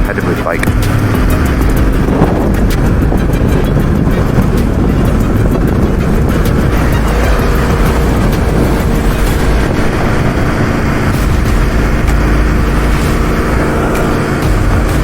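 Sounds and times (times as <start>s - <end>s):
motorcycle engine running: 0.0s - 15.0s
wind rush: 0.0s - 15.0s.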